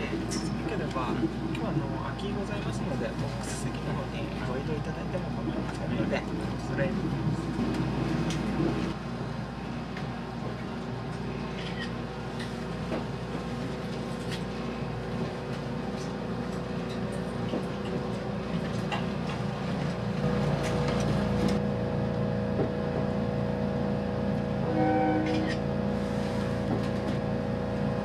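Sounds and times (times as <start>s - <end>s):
train rumble inside cabin: 0.0s - 28.0s.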